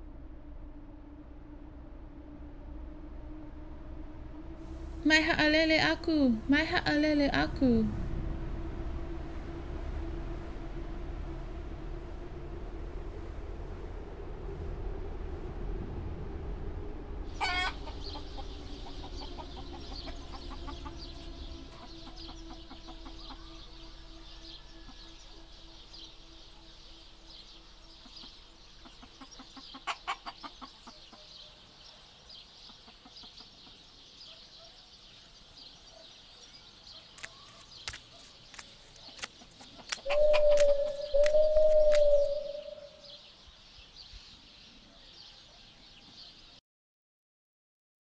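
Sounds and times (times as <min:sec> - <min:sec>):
shimmering downward sweep: 0:00.0 - 0:29.4
low drone: 0:00.0 - 0:29.8, 0:35.3 - 0:43.8
rooster crowing: 0:17.4 - 0:21.1
chicken clucking: 0:17.4 - 0:23.5, 0:28.8 - 0:31.3, 0:39.0 - 0:40.7.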